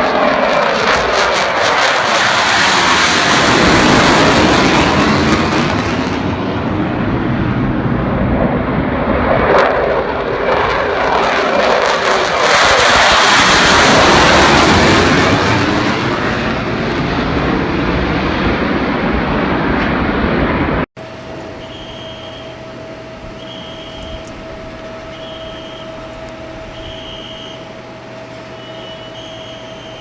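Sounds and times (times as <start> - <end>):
fighter jet engine passing: 0.0 - 30.0
steady hum with held tone: 21.0 - 30.0
short high beep: 21.6 - 22.6, 23.4 - 24.2, 25.1 - 26.0, 26.7 - 27.7, 28.6 - 30.0.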